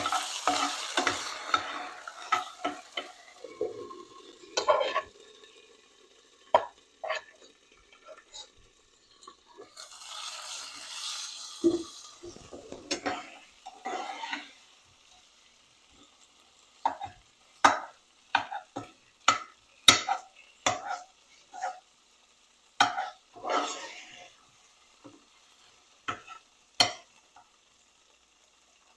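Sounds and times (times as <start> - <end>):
spoon stirring and scraping pot: 0.0 - 5.2, 6.5 - 14.7, 16.8 - 21.9, 22.8 - 24.4, 25.0 - 27.5
frying sizzle: 0.0 - 28.9.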